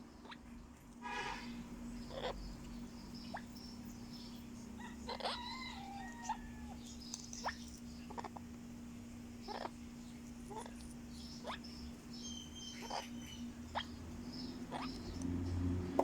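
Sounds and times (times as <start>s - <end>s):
steady low hum: 0.0s - 16.0s
soft gliding parrot vocal: 0.2s - 8.6s, 9.4s - 15.2s
parrot call: 1.0s - 2.5s, 4.8s - 6.8s, 9.5s - 9.8s, 11.4s - 15.1s.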